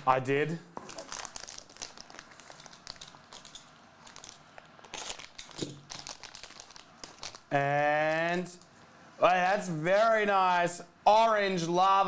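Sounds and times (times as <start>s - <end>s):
plastic packaging crinkling: 0.7s - 7.5s.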